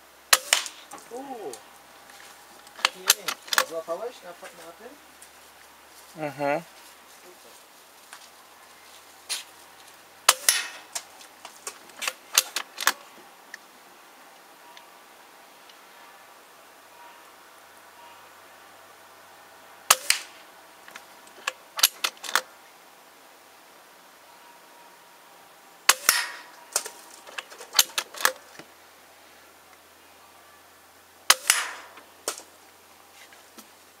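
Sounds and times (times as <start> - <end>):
air rifle shots: 0.3 - 0.9, 10.3 - 11.0, 19.9 - 20.4, 25.9 - 26.9, 31.3 - 32.5
sharp clicks and knocks: 2.6 - 3.8, 20.9 - 22.5, 25.9 - 28.7.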